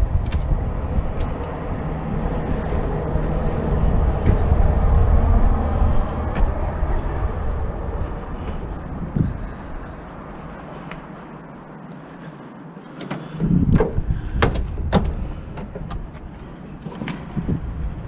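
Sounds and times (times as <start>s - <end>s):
vehicle engine and road rumble: 0.0s - 18.0s.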